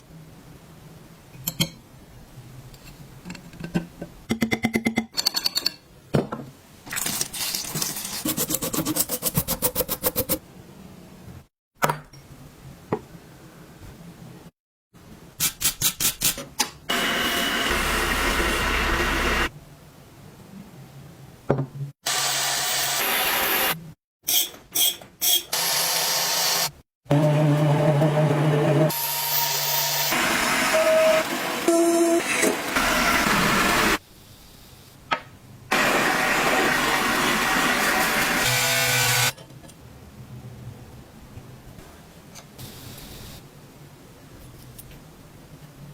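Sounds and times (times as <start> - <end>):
power tool running: 16.9 - 19.5, 35.7 - 39.3.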